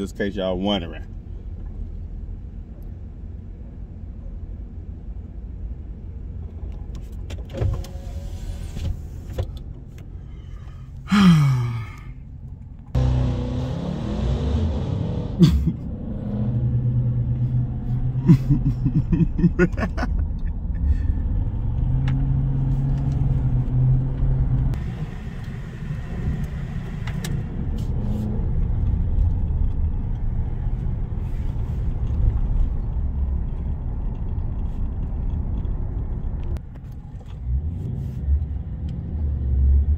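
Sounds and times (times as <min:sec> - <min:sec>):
car exhaust droning and revving: 0:12.9 - 0:31.1.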